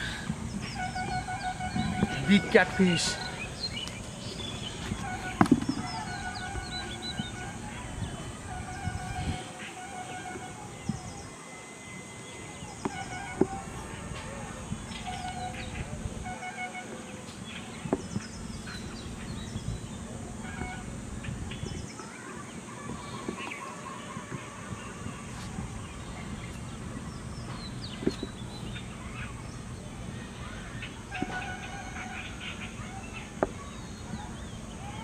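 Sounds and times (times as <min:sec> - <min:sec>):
birds chirping and honking: 0:00.0 - 0:35.0
outdoor noise: 0:00.0 - 0:35.0
sharp knocks: 0:00.1 - 0:07.8.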